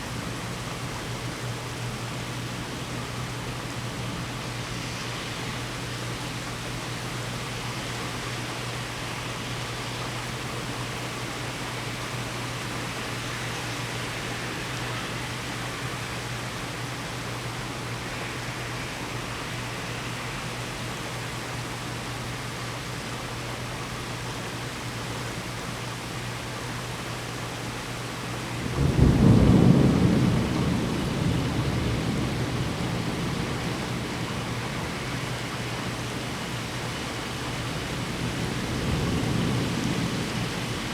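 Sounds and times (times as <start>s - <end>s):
rain falling: 0.0s - 40.9s
thunder clap and rumble: 28.6s - 36.0s, 37.8s - 40.9s.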